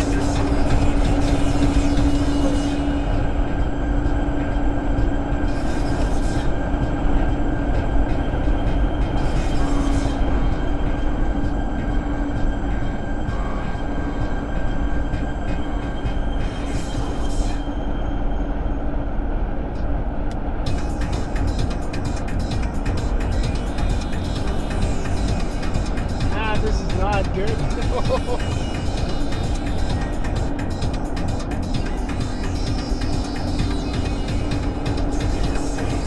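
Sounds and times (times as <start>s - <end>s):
road and wind noise in car: 0.0s - 36.0s
car engine hum: 18.6s - 36.0s
snow hissing against car: 26.3s - 28.4s.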